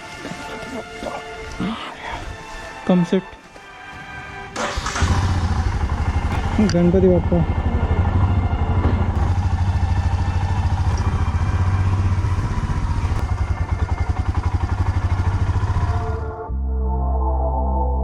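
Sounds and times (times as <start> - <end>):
motorcycle engine running: 4.7 - 16.4.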